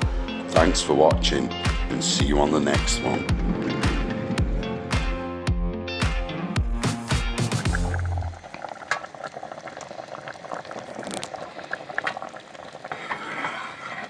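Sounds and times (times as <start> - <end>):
music: 0.0 - 8.3
liquid bubbling: 2.1 - 5.2, 7.5 - 14.0
small crackles and clicks: 8.4 - 13.4.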